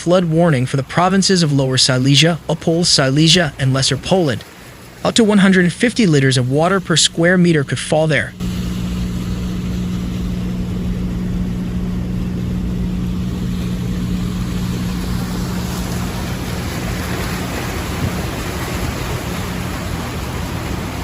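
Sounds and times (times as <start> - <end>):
motor humming: 6.5 - 21.0
even rushing noise: 8.2 - 21.0.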